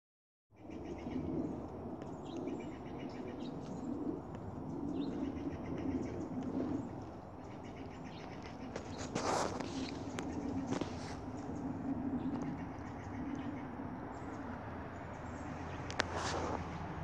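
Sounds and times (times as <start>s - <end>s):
low rumble: 0.6s - 17.0s
bird cooing: 2.4s - 14.5s.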